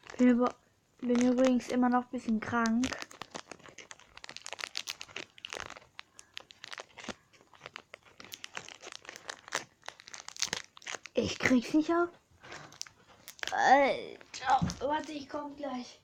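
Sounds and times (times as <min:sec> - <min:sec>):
foil wrapper crinkling: 0:00.0 - 0:15.9.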